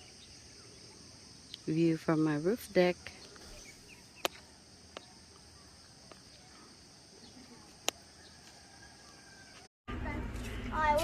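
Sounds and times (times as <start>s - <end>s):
insects droning: 0.0s - 9.7s
faint bird chirps: 3.0s - 9.4s.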